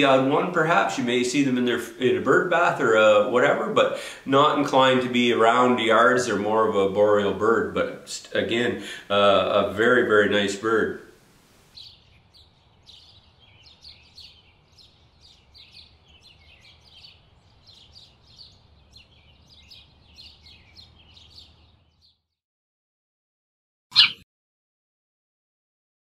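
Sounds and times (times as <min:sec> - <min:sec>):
small songbirds chirping: 0:11.7 - 0:22.4.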